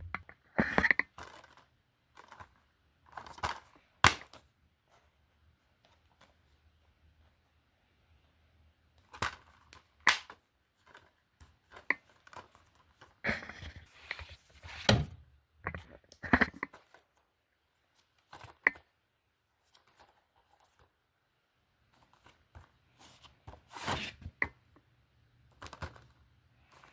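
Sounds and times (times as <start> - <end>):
rustling: 9.0 - 15.2.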